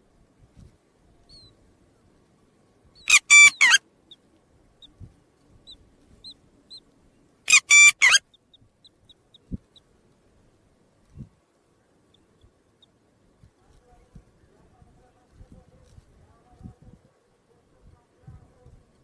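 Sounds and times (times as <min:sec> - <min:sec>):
bird sharp calls: 0:03.0 - 0:03.8, 0:07.5 - 0:08.3.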